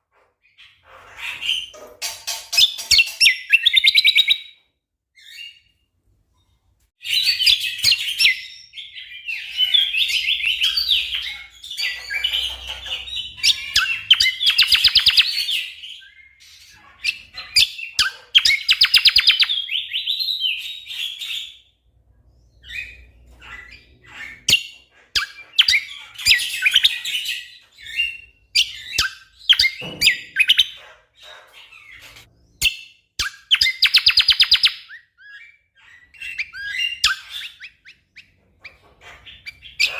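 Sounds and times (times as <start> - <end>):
songbird chirps and rattling trills: 0.1 - 4.5, 8.1 - 19.5, 35.3 - 39.9.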